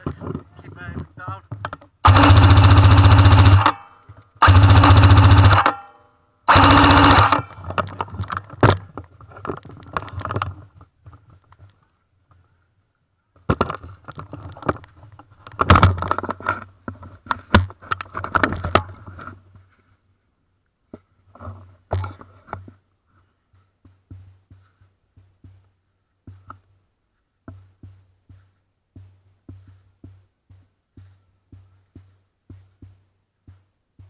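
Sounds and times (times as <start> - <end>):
electric gun full-auto bursts: 2.0 - 5.9, 6.5 - 7.6.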